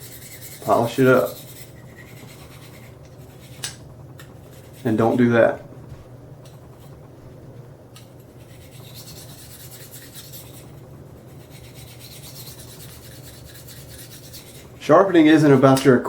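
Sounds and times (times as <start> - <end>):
knife scraping on ceramic stone: 0.0 - 4.9.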